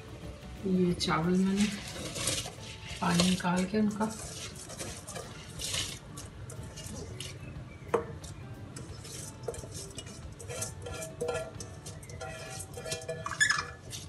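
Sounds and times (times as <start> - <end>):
rice poured into boiling water: 1.4 - 7.4
metal bowl clinking on pot: 1.6 - 14.0.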